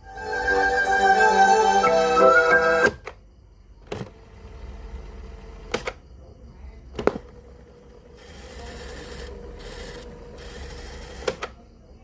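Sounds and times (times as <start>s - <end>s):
sharp mechanical clicks: 5.7s - 6.0s, 9.1s - 11.6s.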